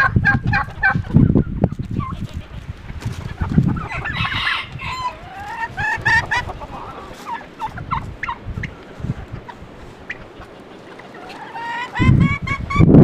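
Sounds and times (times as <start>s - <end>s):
chickens clucking: 0.0s - 13.0s
wind on microphone: 0.0s - 13.0s.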